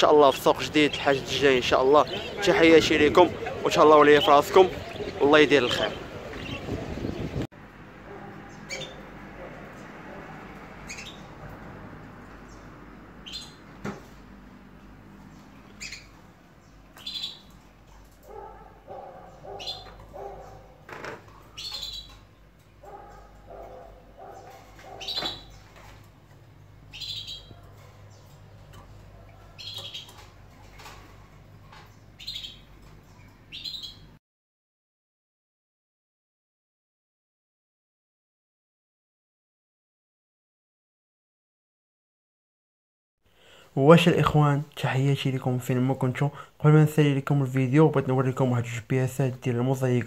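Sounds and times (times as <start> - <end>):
caged birds chirping: 0.0 - 34.2.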